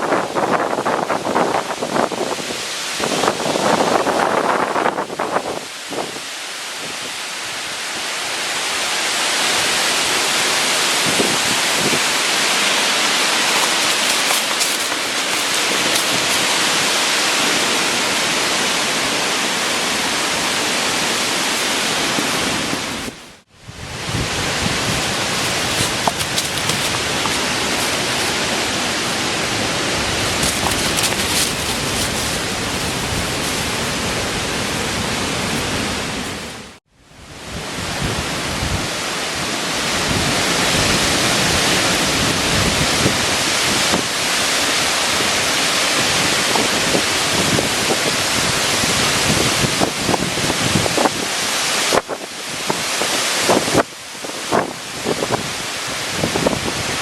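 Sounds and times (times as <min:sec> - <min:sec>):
rain: 0:00.0 - 0:13.6, 0:15.7 - 0:22.7, 0:34.0 - 0:57.0
wind: 0:00.0 - 0:57.0.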